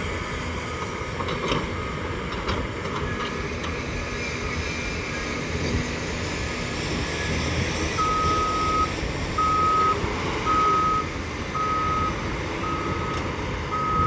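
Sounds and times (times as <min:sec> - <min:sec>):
diesel engine rumbling: 0:00.0 - 0:14.0
reversing alarm beeping: 0:08.0 - 0:14.0.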